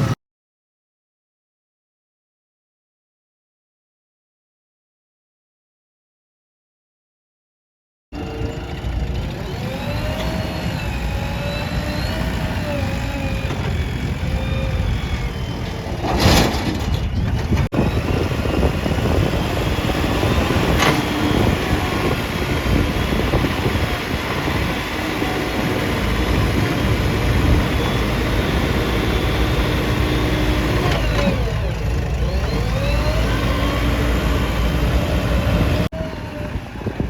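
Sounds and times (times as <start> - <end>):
heavy diesel machinery rumbling: 8.2 - 37.0.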